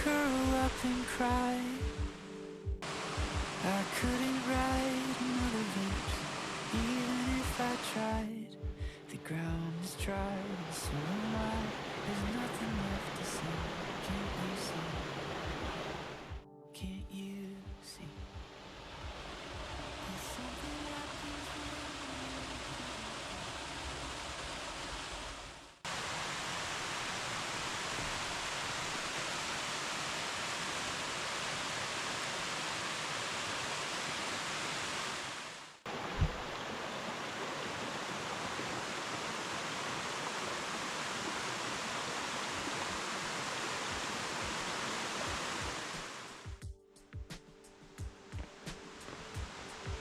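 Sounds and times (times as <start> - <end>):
cascading water rushing: 0.0 - 8.2, 9.8 - 16.4, 18.2 - 46.6, 48.4 - 50.0
soft low thump: 36.0 - 36.5.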